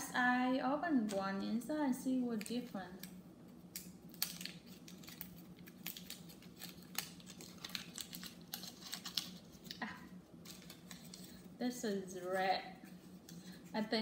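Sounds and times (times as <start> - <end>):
low steady hum: 0.0 - 14.0
wrapper crinkling: 3.8 - 14.0.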